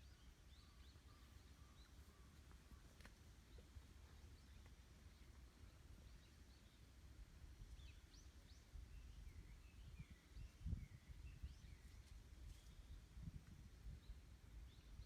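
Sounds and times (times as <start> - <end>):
faint bird chirps: 0.0 - 7.0, 7.6 - 15.0
low wind rumble: 3.9 - 15.0.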